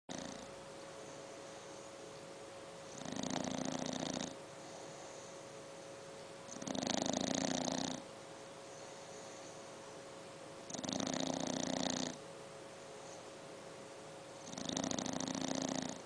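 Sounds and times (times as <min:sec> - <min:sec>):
puppy snoring: 0:00.1 - 0:02.0, 0:02.8 - 0:05.5, 0:06.5 - 0:09.8, 0:10.6 - 0:12.2, 0:14.4 - 0:16.0
dog breathing: 0:00.1 - 0:02.2, 0:02.8 - 0:05.8, 0:06.5 - 0:09.8.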